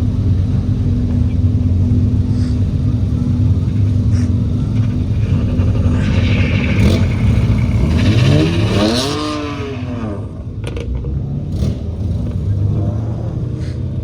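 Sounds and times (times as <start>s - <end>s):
low engine rumble: 0.0s - 14.0s
racing car engine passing: 3.1s - 10.6s.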